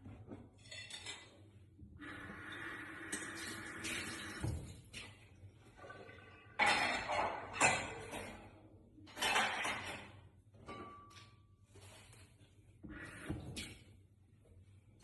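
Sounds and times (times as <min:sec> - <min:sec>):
dishes and cutlery clattering: 0:00.5 - 0:01.5, 0:06.5 - 0:11.6.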